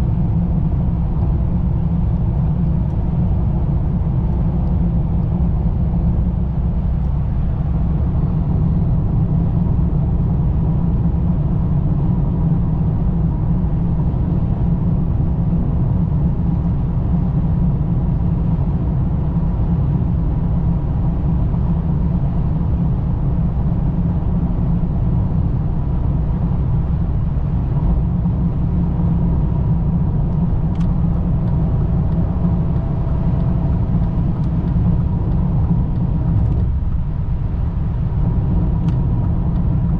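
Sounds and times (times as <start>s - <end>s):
car engine running: 21.0s - 39.9s.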